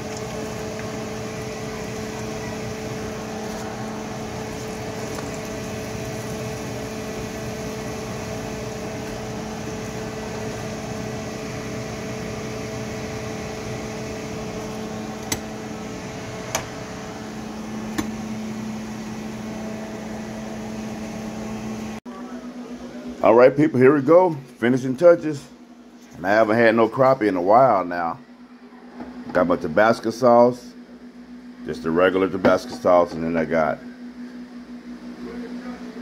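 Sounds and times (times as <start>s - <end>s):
fish frying in hot oil: 0.0s - 12.5s
steady hum: 0.0s - 36.0s.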